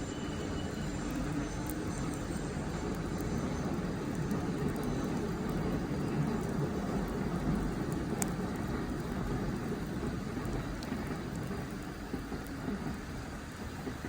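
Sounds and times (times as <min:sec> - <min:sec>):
low rushing fire noise: 0:00.0 - 0:14.0
wood fire crackles: 0:00.0 - 0:14.0.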